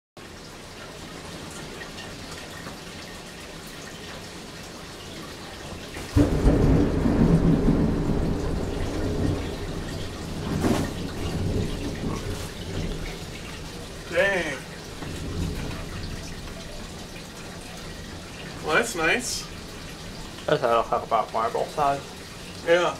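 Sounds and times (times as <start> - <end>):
rain hissing: 0.2 - 22.9
sharp crack of thunder: 6.1 - 13.5, 15.0 - 16.4
thunder rumbling: 6.1 - 19.8.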